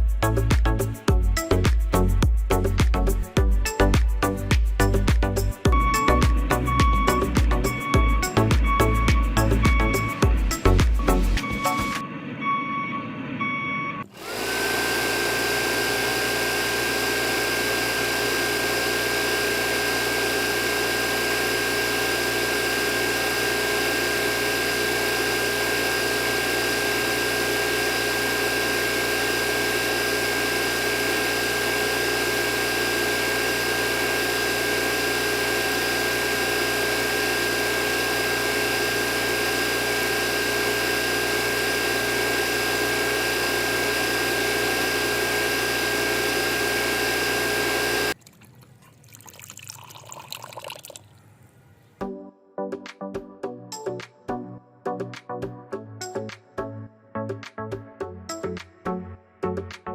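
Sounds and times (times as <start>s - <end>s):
water pump motor whine: 0.0s - 51.1s
brief beeping: 5.7s - 14.1s.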